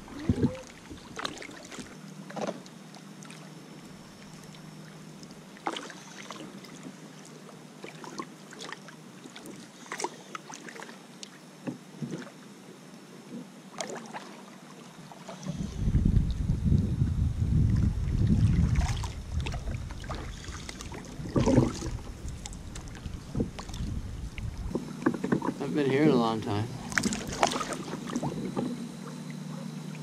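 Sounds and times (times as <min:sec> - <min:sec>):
paddles splashing in water: 0:00.0 - 0:02.6, 0:05.6 - 0:11.0, 0:13.7 - 0:15.5, 0:17.7 - 0:30.0
faint low hum: 0:00.0 - 0:30.0.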